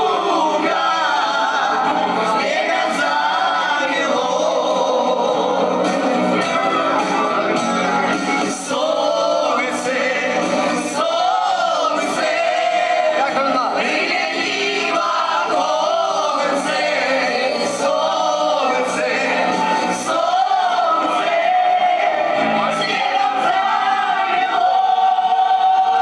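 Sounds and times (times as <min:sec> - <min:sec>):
voices singing together: 0:00.0 - 0:07.3, 0:08.3 - 0:26.0
instrumental backing with beat: 0:00.1 - 0:24.6.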